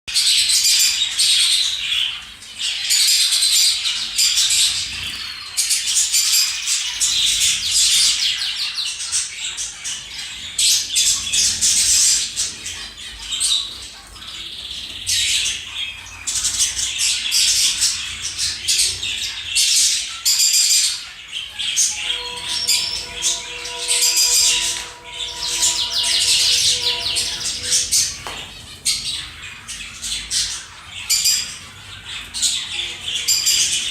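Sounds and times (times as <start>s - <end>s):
small birds chirping: 0.1s - 33.9s
steady tone with overtones: 21.9s - 28.3s.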